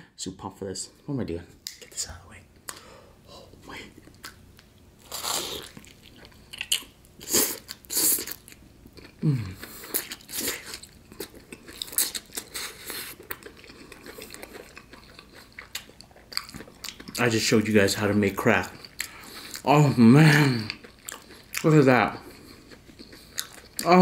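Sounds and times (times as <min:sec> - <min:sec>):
soft wet chewing: 0:03.7 - 0:24.0
crunching fried chicken crust: 0:05.0 - 0:24.0.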